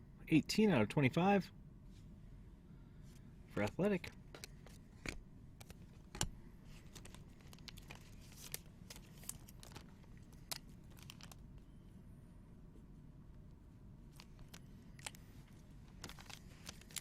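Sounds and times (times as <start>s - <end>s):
trading cards clicking and snapping: 3.6s - 11.4s
wrapper crinkling tear: 6.9s - 11.4s, 15.9s - 17.0s.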